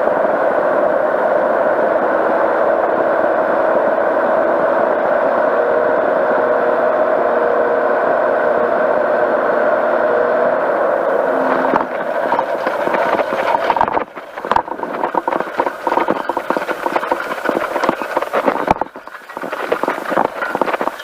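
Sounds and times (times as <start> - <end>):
powered parachute engine: 0.0 - 21.0
irregular crackling and rattling: 11.7 - 21.0.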